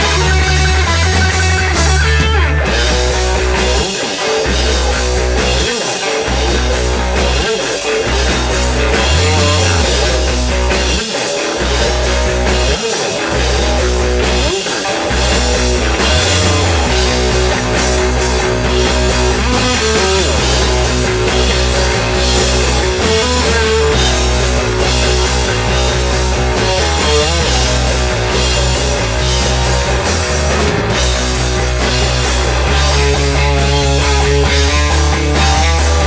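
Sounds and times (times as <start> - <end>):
drum kit: 0.0 - 36.0
electric guitar: 0.0 - 36.0
heavy bass line: 0.0 - 36.0.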